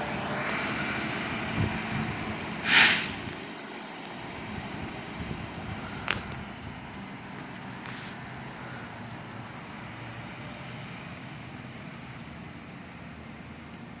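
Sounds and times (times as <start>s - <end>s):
diesel engine rumbling: 0.0s - 14.0s
short hiss: 2.6s - 3.5s.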